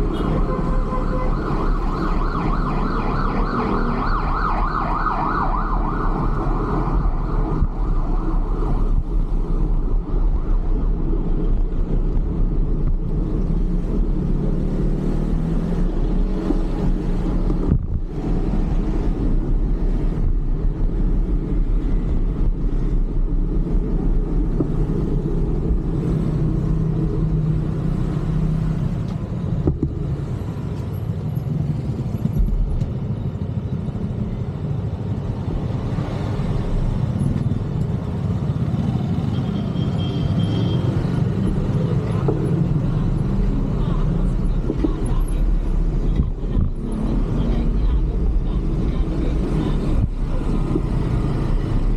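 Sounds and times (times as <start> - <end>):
road traffic rumble: 0.0 - 51.9.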